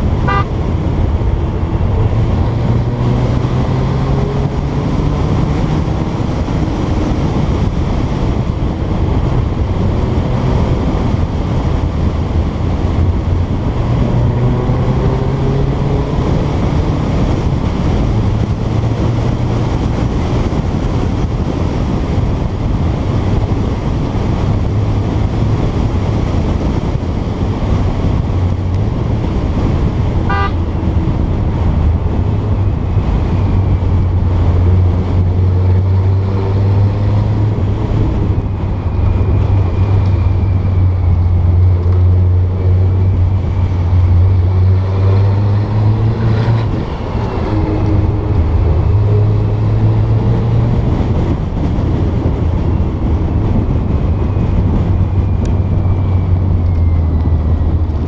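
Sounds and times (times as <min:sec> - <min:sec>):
car engine running: 0:00.0 - 0:14.6
brief high tone: 0:00.2 - 0:00.5, 0:30.3 - 0:30.7.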